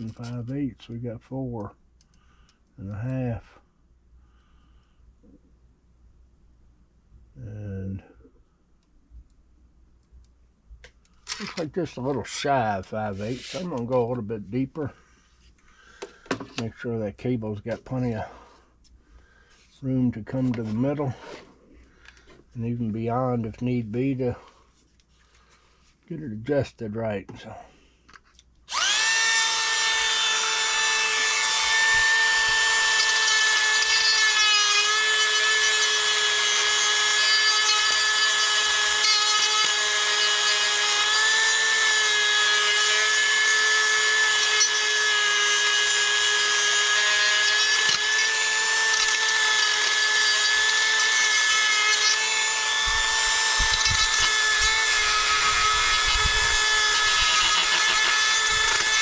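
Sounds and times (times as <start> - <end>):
power tool whining: 28.7 - 59.0.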